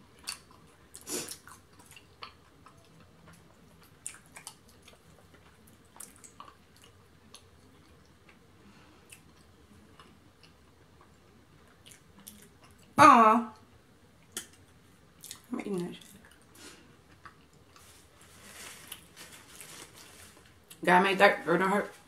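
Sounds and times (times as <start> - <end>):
chewing and mouth sounds: 0.1 - 13.0, 14.2 - 18.0.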